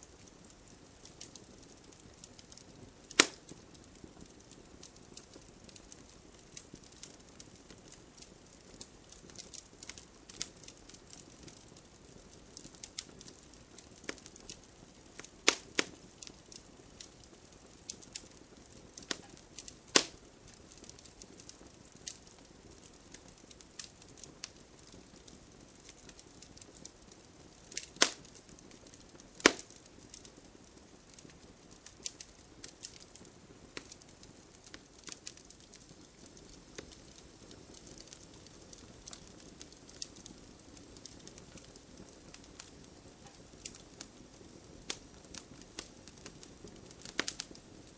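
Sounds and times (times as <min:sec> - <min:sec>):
wood fire crackling and popping: 0:00.0 - 0:47.9.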